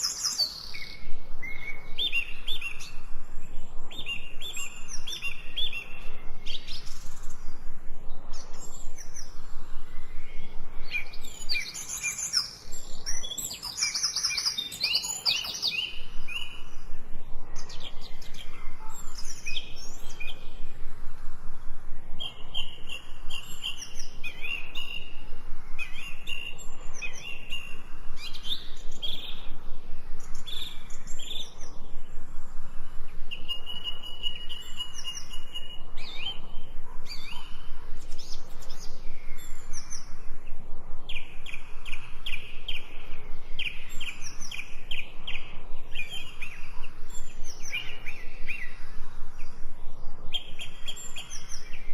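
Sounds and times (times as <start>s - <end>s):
birds chirping and singing: 0.0s - 21.0s, 22.0s - 32.2s, 33.1s - 51.9s.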